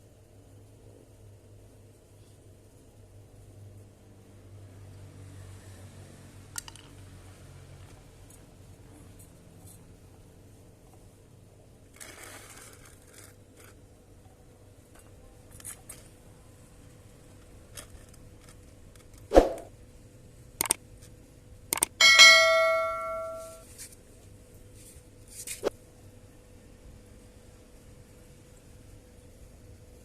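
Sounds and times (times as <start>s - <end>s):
faint steady hum: 0.0s - 30.0s
clicks: 20.6s - 20.8s
struck metal ringing: 22.0s - 23.6s.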